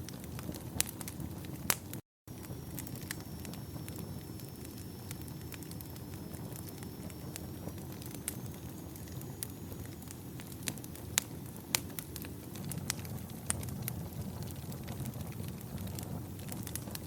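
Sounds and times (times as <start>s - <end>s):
burning wood crackling and popping: 0.0s - 17.0s
low rumble of fire: 0.0s - 17.0s.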